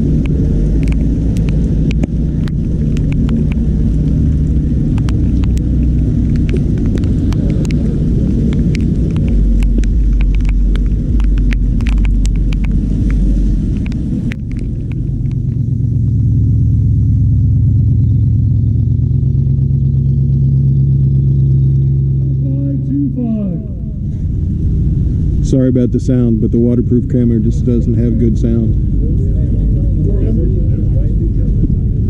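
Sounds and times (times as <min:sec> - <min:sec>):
muffled car engines rumbling: 0:00.0 - 0:32.0
raindrops tapping on camera housing: 0:00.2 - 0:15.8.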